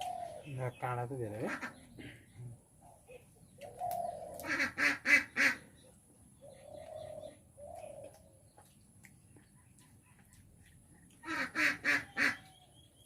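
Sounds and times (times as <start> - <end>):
birds quacking calls: 1.3 - 2.4, 3.9 - 5.7, 11.2 - 12.5.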